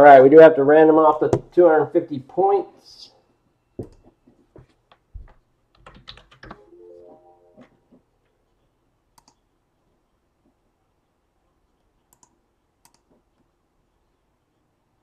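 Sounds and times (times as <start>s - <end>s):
keyboard typing: 5.2s - 6.7s, 9.1s - 9.5s
rising electronic tones: 6.6s - 7.8s
mouse clicks: 9.1s - 9.4s, 12.0s - 13.5s.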